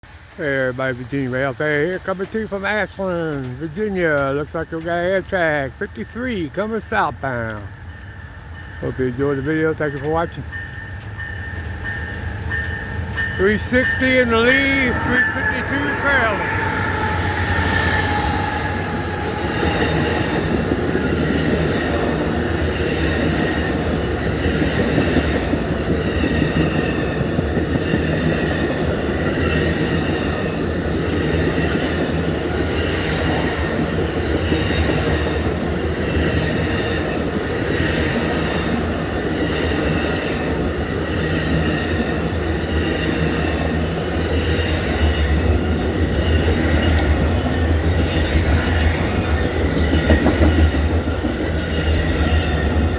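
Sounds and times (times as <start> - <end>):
train cars rumbling past: 0.0 - 52.9
wheels clicking over rail joints: 0.0 - 52.9
high wheel squeal: 10.6 - 23.0.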